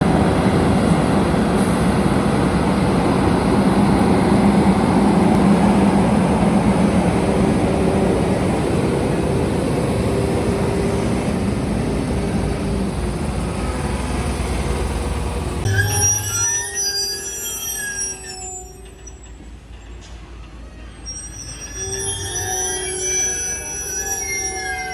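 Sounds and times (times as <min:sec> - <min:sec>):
diesel truck engines humming: 0:00.0 - 0:15.7.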